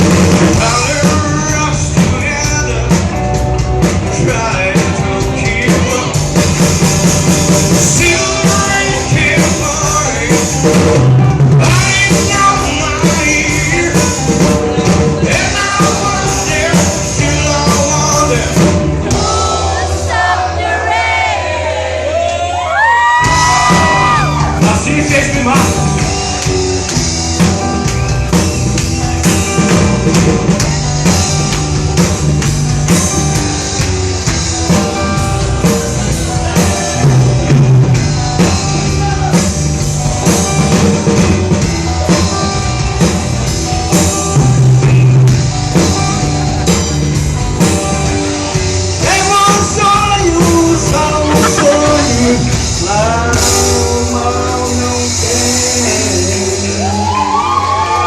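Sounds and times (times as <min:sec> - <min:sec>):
rock band playing live: 0:00.0 - 0:58.0
lead guitar line bending: 0:23.3 - 0:55.0.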